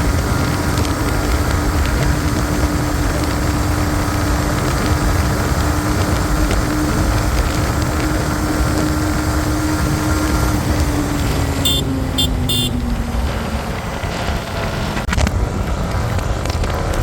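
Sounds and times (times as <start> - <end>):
motorcycle engine running: 0.0 - 17.0
wind and road rumble: 0.0 - 17.0
vehicle horn honks: 11.6 - 12.9.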